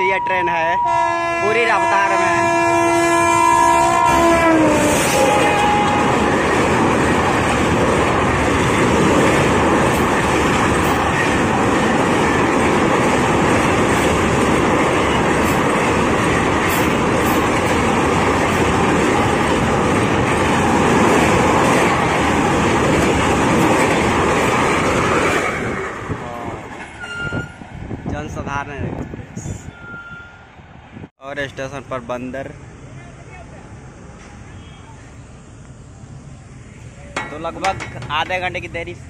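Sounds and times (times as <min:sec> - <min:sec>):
train wheels rolling on rails: 0:04.0 - 0:28.0, 0:35.4 - 0:39.0.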